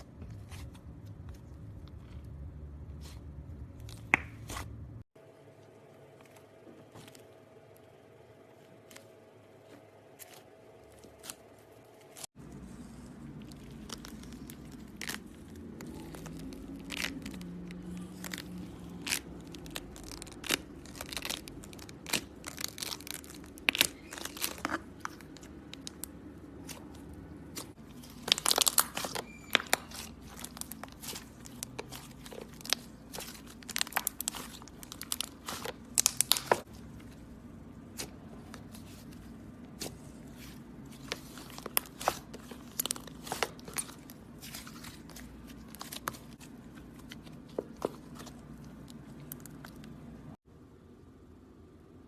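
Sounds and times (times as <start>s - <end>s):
slime crackling and popping: 12.9s - 26.9s, 27.6s - 36.7s.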